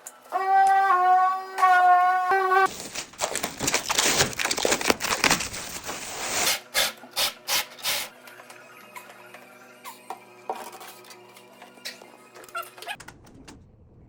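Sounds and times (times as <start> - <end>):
rough scraping on hard surface: 5.6 - 6.6.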